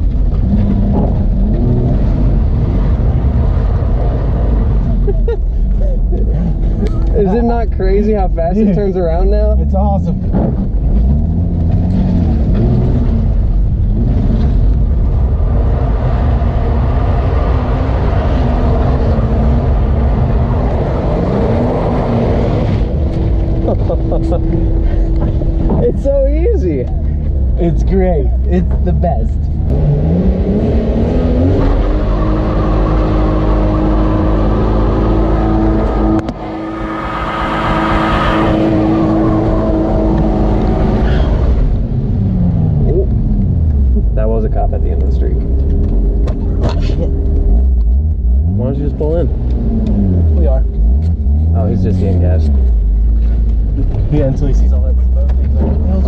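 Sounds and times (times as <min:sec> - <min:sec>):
car engine rumbling: 0:00.0 - 0:56.0.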